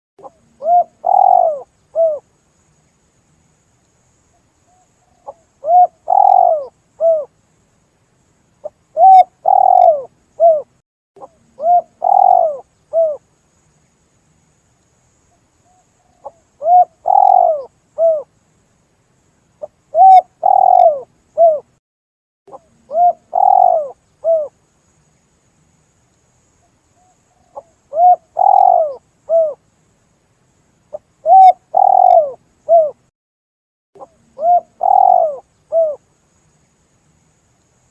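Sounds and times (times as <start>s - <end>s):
dove cooing: 0.2s - 2.2s, 4.7s - 7.3s, 8.6s - 13.2s, 15.7s - 18.3s, 19.9s - 21.7s, 22.5s - 24.6s, 27.0s - 29.6s, 30.9s - 33.0s, 34.0s - 36.0s.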